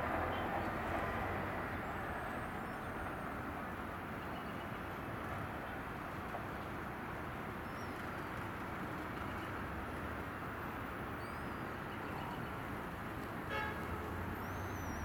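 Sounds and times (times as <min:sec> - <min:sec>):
distant traffic: 0:00.0 - 0:04.4
passing commuter train rumble: 0:00.0 - 0:11.2
train horn toot: 0:13.5 - 0:14.0.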